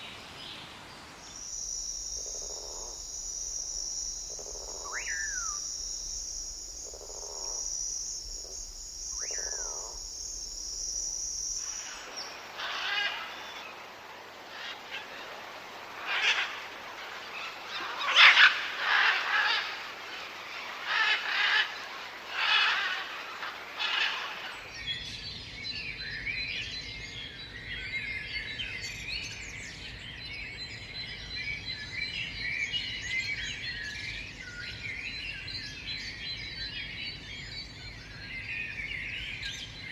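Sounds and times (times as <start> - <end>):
insect drone: 0.0 - 25.2
rising bird whistles: 1.3 - 12.0
chorus of birds chirping: 1.3 - 24.7
loud bird calls: 1.3 - 24.7.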